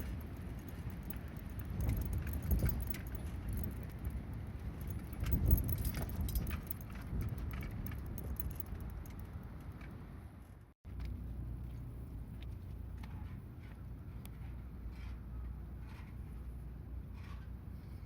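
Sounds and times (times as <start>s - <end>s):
metallic clinking and jingling: 0.0s - 9.8s
wind buffeting microphone: 0.0s - 10.3s.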